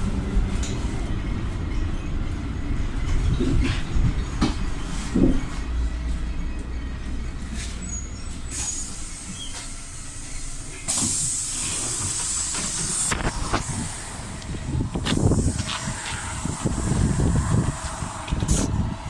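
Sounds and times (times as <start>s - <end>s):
bus engine and road rumble: 0.0s - 19.0s
compressed air hiss: 8.5s - 19.0s.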